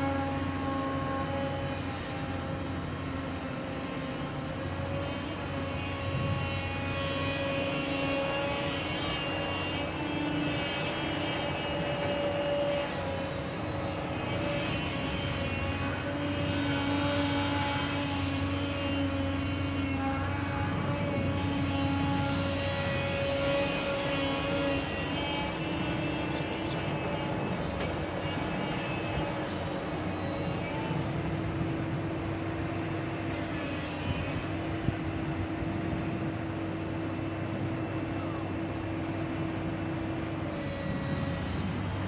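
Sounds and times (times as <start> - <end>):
diesel engine droning: 0.0 - 42.0.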